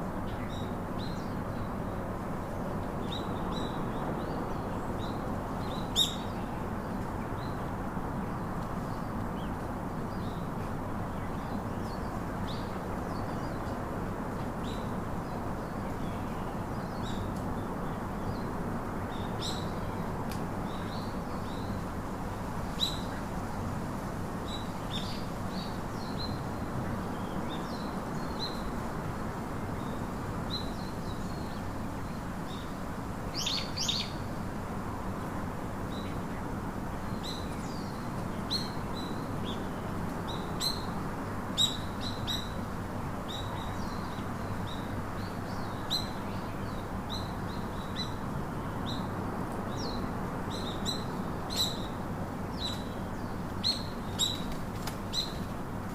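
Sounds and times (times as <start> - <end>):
low background hiss: 0.0 - 55.9
small birds chirping: 24.4 - 34.4, 35.9 - 55.5.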